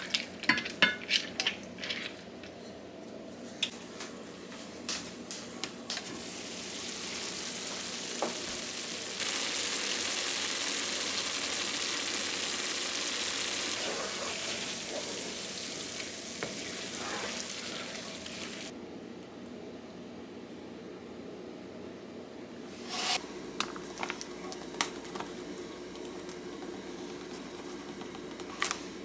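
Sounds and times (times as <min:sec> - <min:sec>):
food sizzling in a pan: 0:06.1 - 0:18.7, 0:22.7 - 0:23.5.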